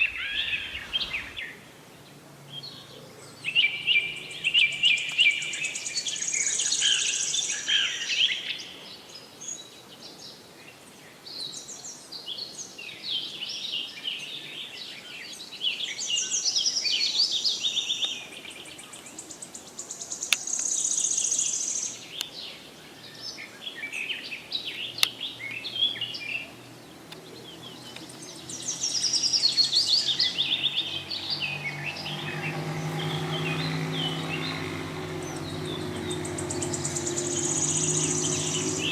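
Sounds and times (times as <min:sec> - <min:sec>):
pet birds chirping and twittering: 0:17.5 - 0:38.9.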